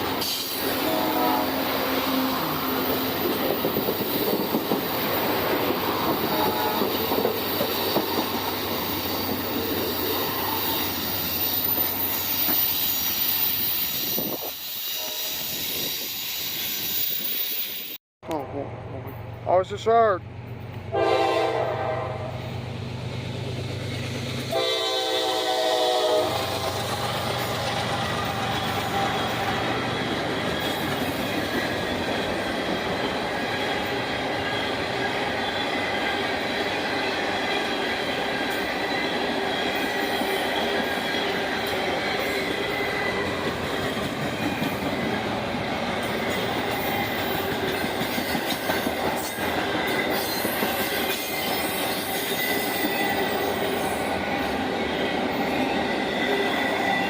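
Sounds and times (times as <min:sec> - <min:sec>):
train horn blast: 0:00.2 - 0:03.2, 0:06.2 - 0:07.0, 0:14.9 - 0:15.6, 0:20.9 - 0:22.5, 0:24.5 - 0:27.0
train wheels clattering: 0:25.4 - 0:57.0.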